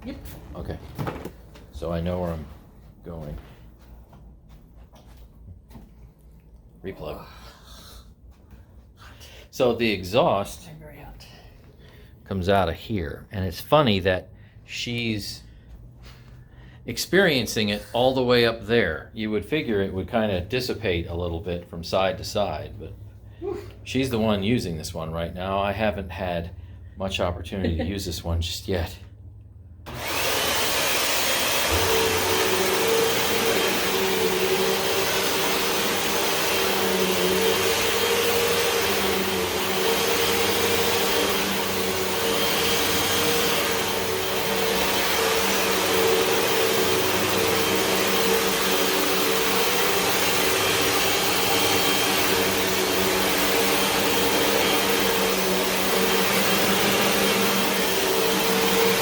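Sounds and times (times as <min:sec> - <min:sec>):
vacuum cleaner running: 0:29.9 - 0:59.0.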